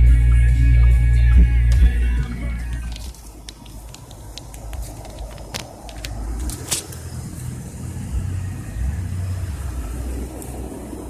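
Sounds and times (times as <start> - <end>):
engine idling: 0.0 - 11.0
sharp clicks and knocks: 2.8 - 7.0.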